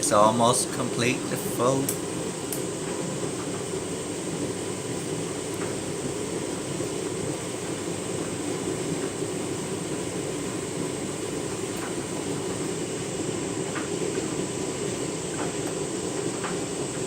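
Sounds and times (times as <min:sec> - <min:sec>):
washing machine drum churning: 0:00.0 - 0:17.0.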